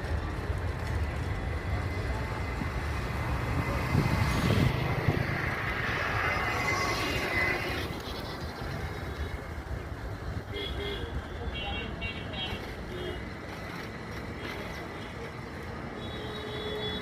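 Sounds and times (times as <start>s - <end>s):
high engine whine: 0.0s - 11.5s
airplane engines rumbling: 0.0s - 17.0s.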